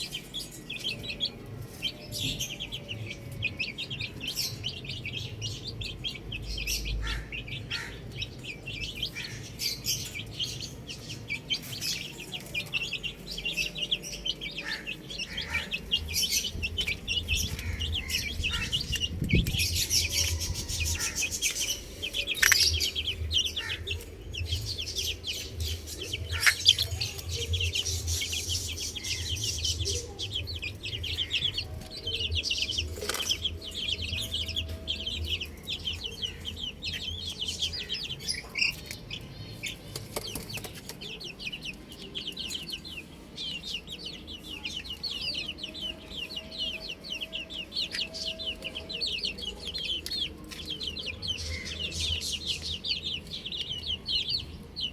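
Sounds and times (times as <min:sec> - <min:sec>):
chicks peeping: 0:00.0 - 0:54.9
hen clucking: 0:14.6 - 0:16.2.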